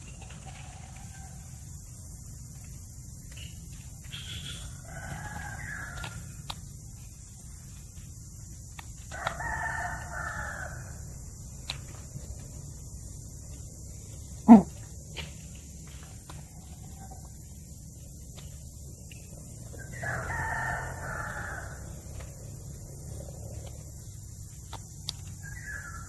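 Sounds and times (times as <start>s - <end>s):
rooster crowing: 0.5s - 1.7s, 4.4s - 6.4s, 9.1s - 11.2s, 19.7s - 23.2s, 25.4s - 26.0s.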